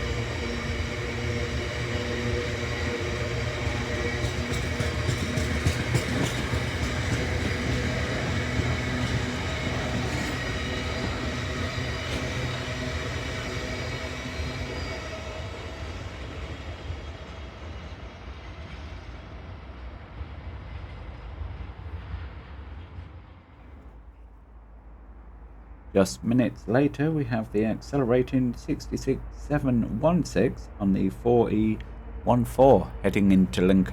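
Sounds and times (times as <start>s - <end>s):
wheels squealing: 0.0s - 16.5s
freight train wagons rolling: 0.0s - 18.7s.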